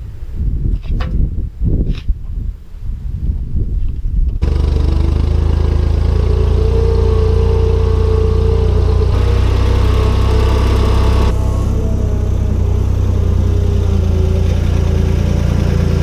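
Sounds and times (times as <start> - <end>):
farm machine engine running: 4.4 - 16.0
low rumble: 4.4 - 16.0.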